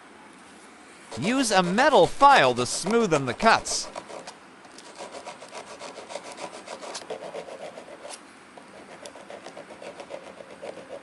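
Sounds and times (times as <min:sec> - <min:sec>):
metal file rasping on metal: 0:03.8 - 0:08.2.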